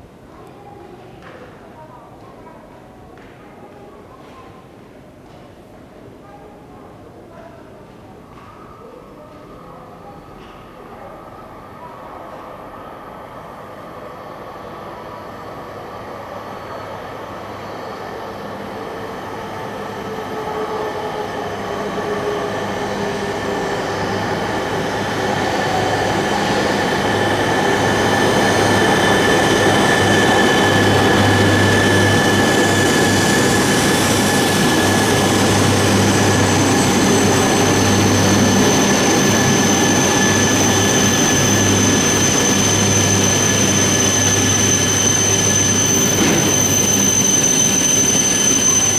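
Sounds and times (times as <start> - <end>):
train rail roar: 13.1 - 48.9
high-pitched whines: 21.3 - 48.9.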